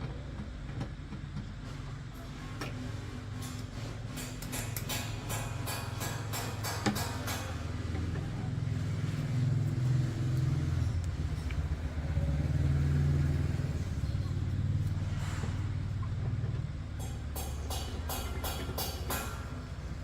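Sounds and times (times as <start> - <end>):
motorcycle engine running: 7.2 - 18.3.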